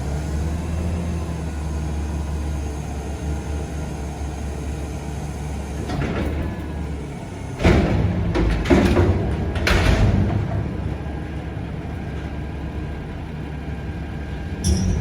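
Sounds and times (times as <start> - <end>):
diesel engine idling: 10.4 - 15.0.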